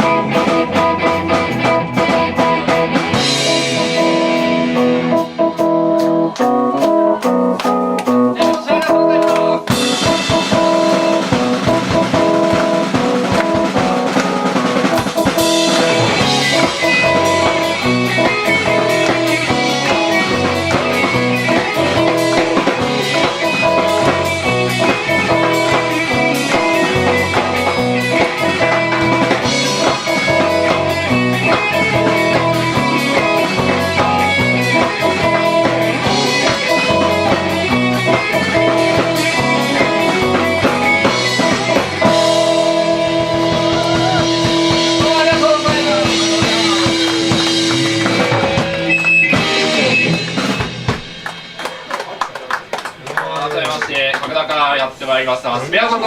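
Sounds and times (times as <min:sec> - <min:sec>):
drum kit beat: 0:00.0 - 0:56.0
electric guitars: 0:00.0 - 0:56.0.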